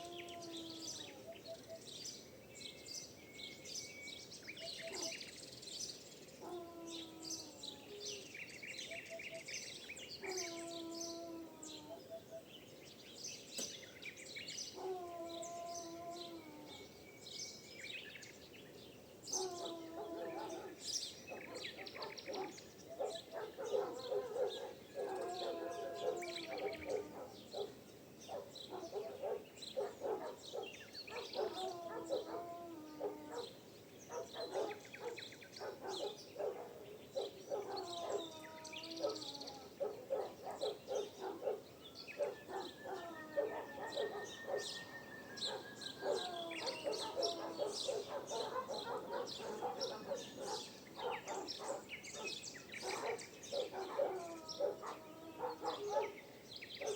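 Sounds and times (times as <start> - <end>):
birds chirping and singing: 0.0 - 56.9
longer lower bird calls: 0.0 - 56.9.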